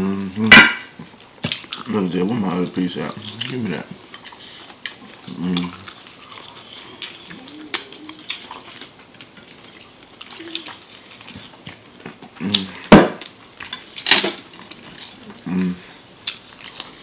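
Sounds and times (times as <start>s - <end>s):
chewing fried chicken: 1.0s - 17.0s
loud sharp knock: 12.9s - 13.2s.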